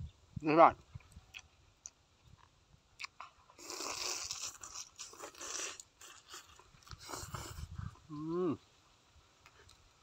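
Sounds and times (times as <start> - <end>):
person chewing: 1.0 - 8.3.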